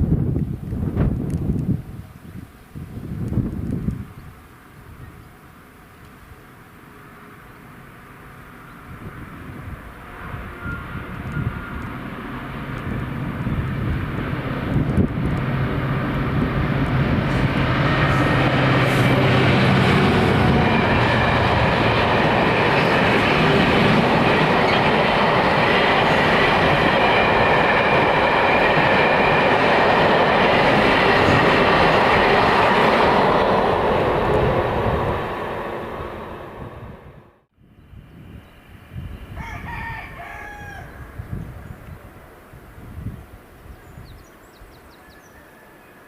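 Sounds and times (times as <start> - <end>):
train wagons rolling past: 6.9 - 37.3.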